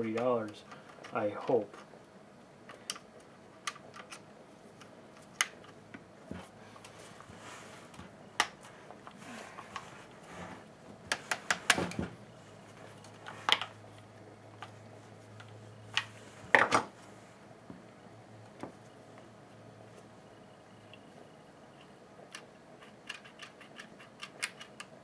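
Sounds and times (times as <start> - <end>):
faint low hum: 0.0 - 25.0
plastic and metal parts clicking: 22.3 - 25.0.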